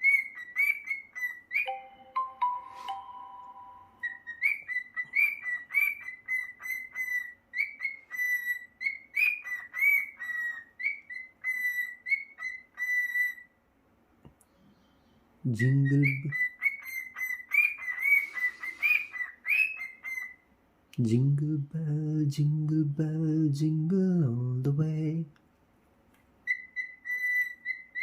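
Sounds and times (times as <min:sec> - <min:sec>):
cockatiel whistling a tune: 0:00.0 - 0:13.5, 0:15.6 - 0:20.4, 0:26.4 - 0:28.0.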